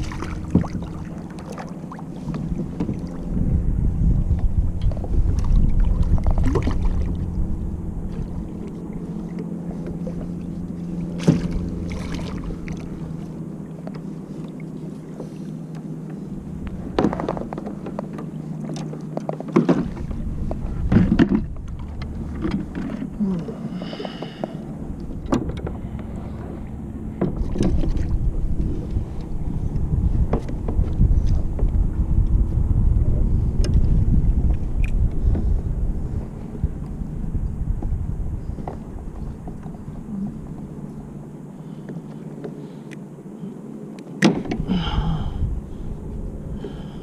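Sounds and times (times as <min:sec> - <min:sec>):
wind on microphone: 0:00.0 - 0:15.2, 0:19.6 - 0:41.3, 0:44.4 - 0:47.0
steady low hum: 0:00.0 - 0:47.0
knocks against kayak hull: 0:11.2 - 0:11.6, 0:44.2 - 0:44.7.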